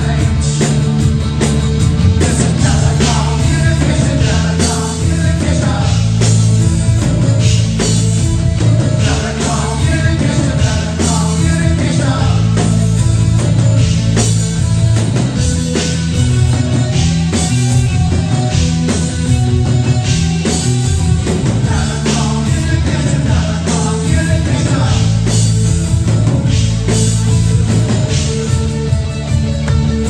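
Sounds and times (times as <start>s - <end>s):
lead vocal singing: 0.0s - 14.2s, 20.0s - 28.6s
rock band playing: 0.0s - 30.0s.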